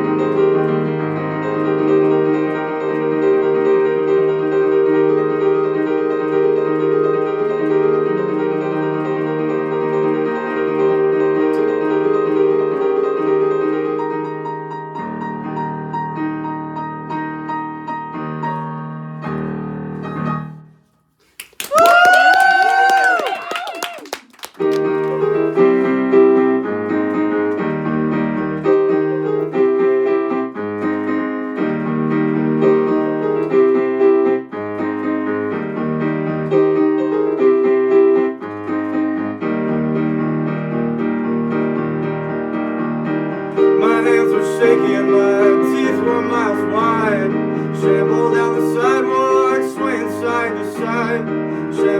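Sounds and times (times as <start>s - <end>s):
piano chords: 0.0s - 20.8s, 21.4s - 51.9s.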